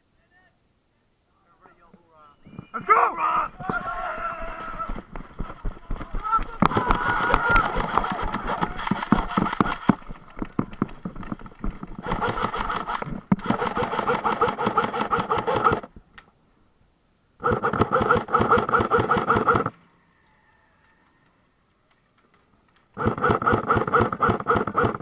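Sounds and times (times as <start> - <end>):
airsoft gun firing bursts: 4.9 - 15.9, 17.4 - 19.7, 23.0 - 25.0
gun motor whine: 6.7 - 15.9, 17.4 - 19.8, 23.0 - 25.0.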